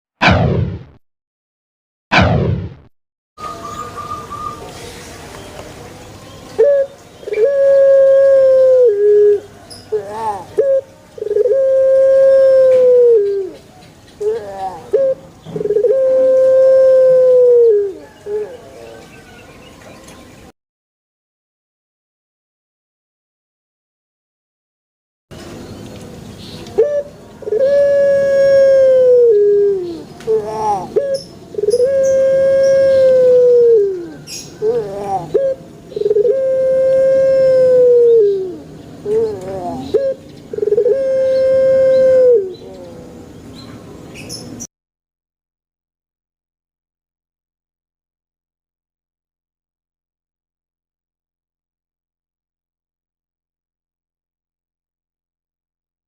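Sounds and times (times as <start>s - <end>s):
dove cooing: 6.6s - 13.6s, 14.2s - 19.1s, 26.8s - 43.2s.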